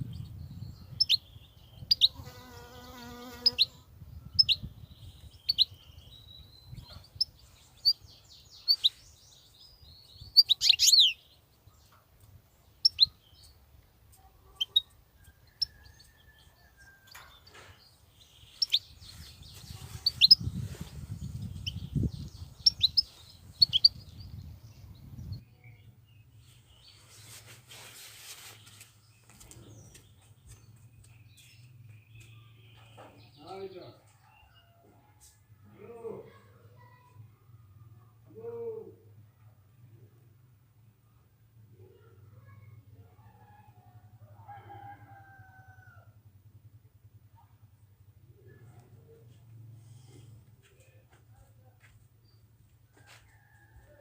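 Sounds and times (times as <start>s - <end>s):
finch chirping: 0.1s - 2.2s, 3.4s - 11.3s, 12.8s - 13.6s, 14.5s - 15.7s, 17.1s - 24.5s.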